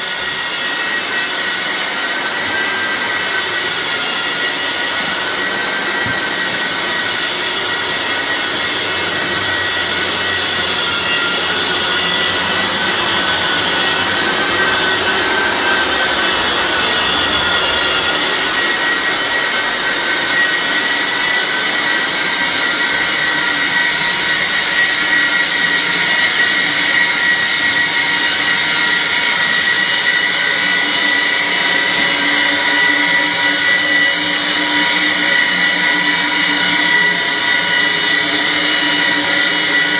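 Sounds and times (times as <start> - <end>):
floor sanding machine whining: 0.0 - 39.9.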